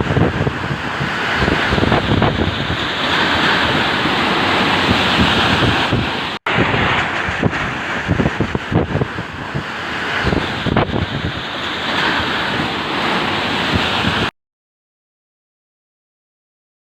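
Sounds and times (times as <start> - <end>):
storm wind gusting: 0.0 - 14.3.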